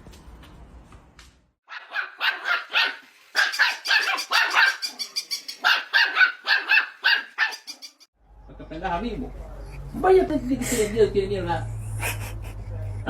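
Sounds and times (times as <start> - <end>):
dog barking high-pitched: 1.7 - 8.1.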